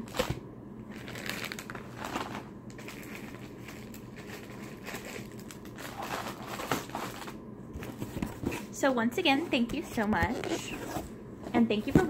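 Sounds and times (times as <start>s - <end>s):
wrappers crinkling: 0.0s - 8.0s.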